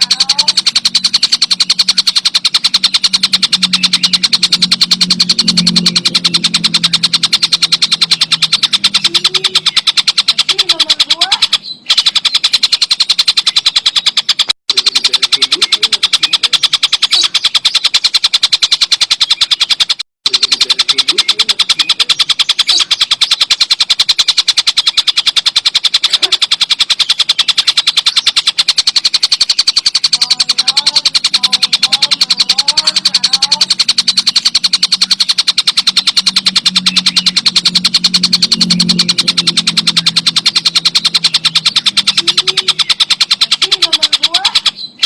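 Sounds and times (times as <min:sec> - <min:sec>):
kingfisher chattering call: 0:20.3 - 0:45.0.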